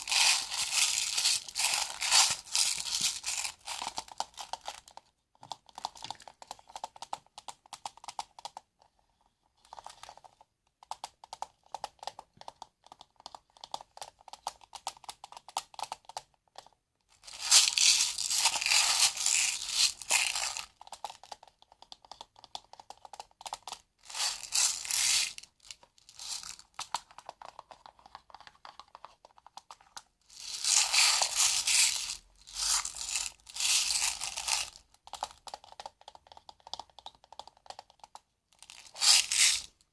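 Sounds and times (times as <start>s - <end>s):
rustling and crinkling: 0.0s - 4.8s, 17.1s - 20.7s, 23.1s - 36.0s, 38.6s - 39.8s.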